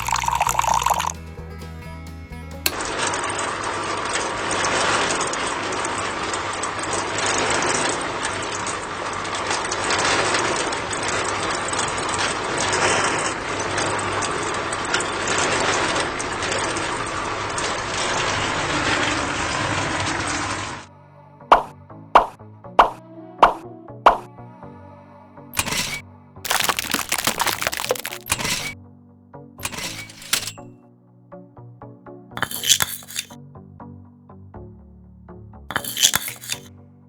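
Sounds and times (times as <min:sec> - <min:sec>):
background music: 0:00.0 - 0:03.1
small electric motor rattling: 0:29.6 - 0:30.6, 0:32.4 - 0:33.4, 0:35.7 - 0:36.7.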